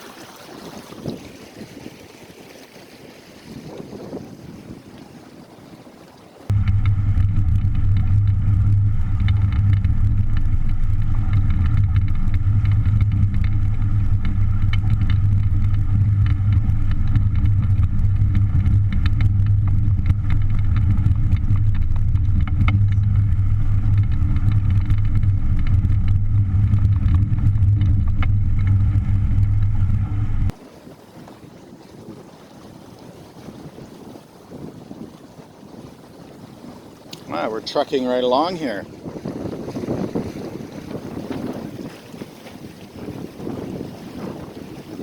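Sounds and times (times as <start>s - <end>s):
motor running steadily: 6.5s - 30.6s.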